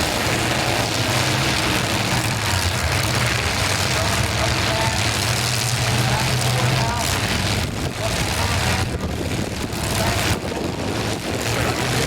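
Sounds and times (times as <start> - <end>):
car engines rumbling and revving: 0.0 - 12.0.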